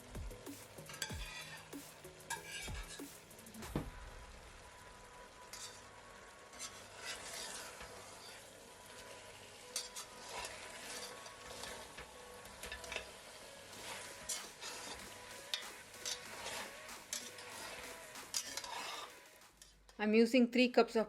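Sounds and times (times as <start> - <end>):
faint sizzle in pot: 0.0 - 20.1
spoon scraping pot: 0.8 - 3.0, 6.6 - 8.5, 9.7 - 12.0, 12.6 - 19.8.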